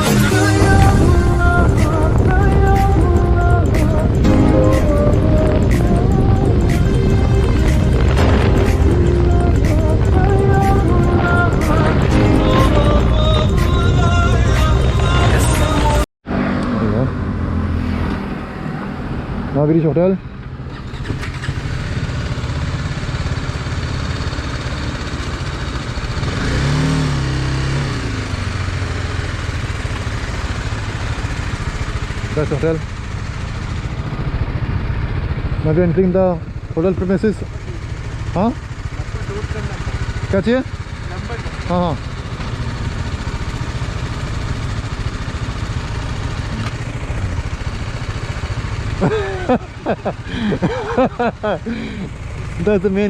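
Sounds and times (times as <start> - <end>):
motorcycle engine running: 0.0 - 53.0
steady rushing noise: 17.2 - 20.0.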